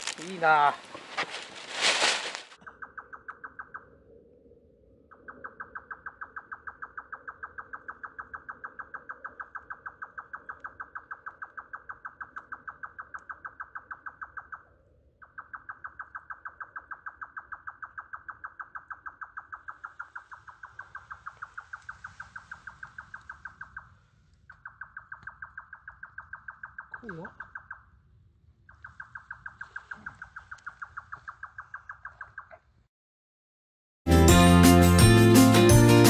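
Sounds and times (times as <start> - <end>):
rapid pulsed animal call: 0.1 - 32.6.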